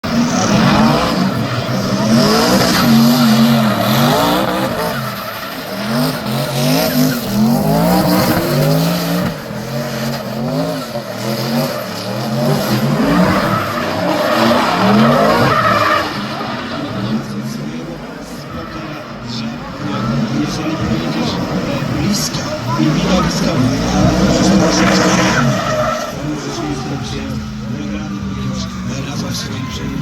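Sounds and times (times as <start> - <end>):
tyres squealing: 0.0 - 17.5
car engine revving: 0.0 - 30.0.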